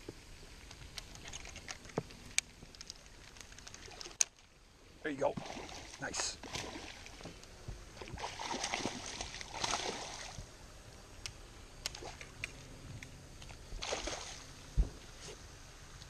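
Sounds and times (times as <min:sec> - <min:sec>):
water splashing and sloshing: 0:02.5 - 0:04.5, 0:05.1 - 0:10.5, 0:11.8 - 0:12.7, 0:13.4 - 0:15.3.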